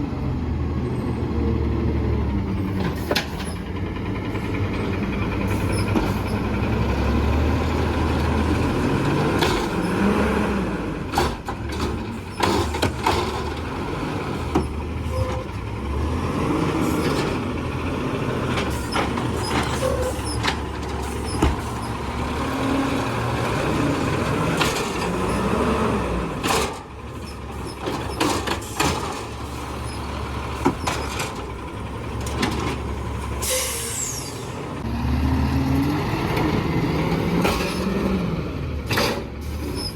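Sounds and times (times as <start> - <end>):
garbage truck engine running: 0.0 - 39.9
air brakes hissing: 33.4 - 34.6.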